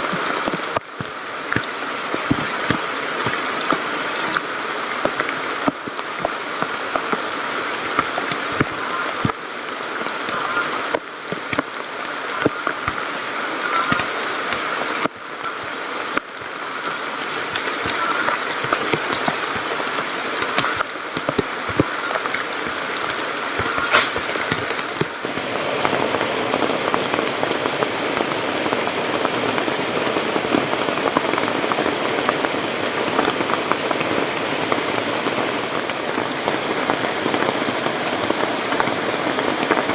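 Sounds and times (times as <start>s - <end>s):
heavy rain on a surface: 0.0s - 39.9s
rushing stream water: 0.0s - 39.9s.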